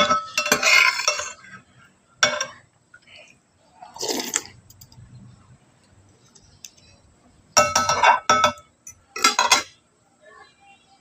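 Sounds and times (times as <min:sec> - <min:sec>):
cutlery clinking against dishes: 0:00.0 - 0:01.6, 0:02.2 - 0:02.6, 0:07.6 - 0:09.8.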